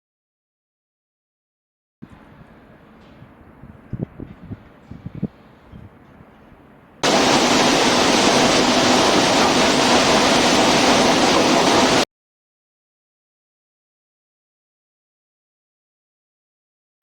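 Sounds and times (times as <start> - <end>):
industrial machinery rushing: 7.0 - 12.0.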